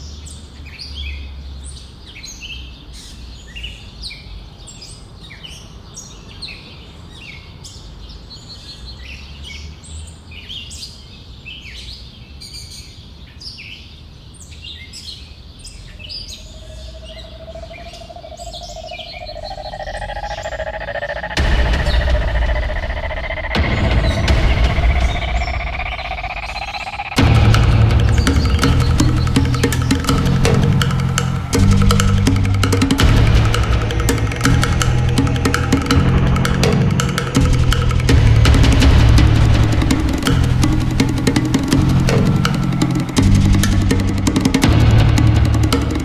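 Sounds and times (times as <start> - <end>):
small birds chirping: 0.0 - 46.0
low rumble: 16.2 - 46.0
sustained tone: 16.3 - 46.0
music: 18.9 - 46.0.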